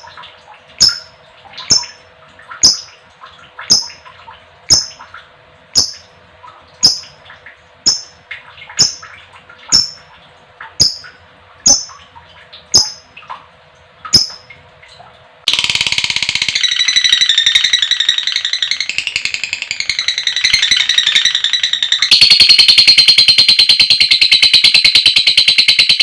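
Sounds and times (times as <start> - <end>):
lovebird chattering: 7.9 - 8.2, 12.8 - 13.0, 15.5 - 26.0
lovebird sharp high calls: 15.5 - 26.0.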